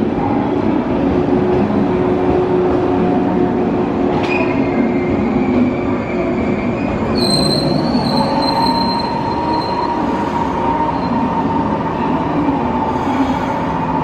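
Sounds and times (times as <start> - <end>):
train wheels rumbling on rail: 0.0 - 14.0
lower squealing tone: 4.2 - 10.0
high-pitched brake squeal: 4.2 - 11.2.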